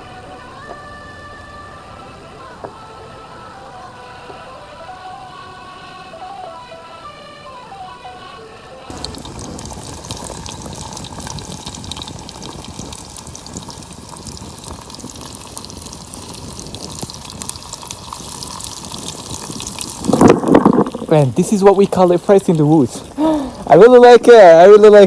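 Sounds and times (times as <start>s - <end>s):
fries sizzling in hot oil: 8.9s - 23.8s.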